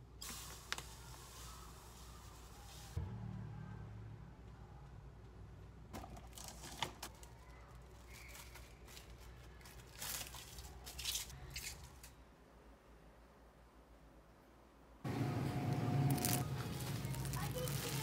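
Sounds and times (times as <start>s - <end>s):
plastic cling wrap crinkling and tearing: 6.3s - 12.2s, 16.0s - 18.0s.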